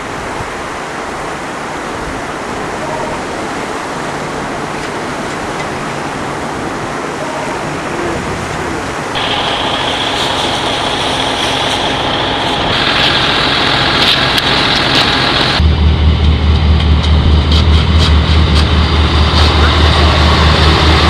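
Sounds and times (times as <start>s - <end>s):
heavy vehicle engines running: 2.4s - 21.0s
steady hiss: 7.6s - 15.6s
high whine: 9.1s - 21.0s
low throbbing engine: 9.2s - 21.0s.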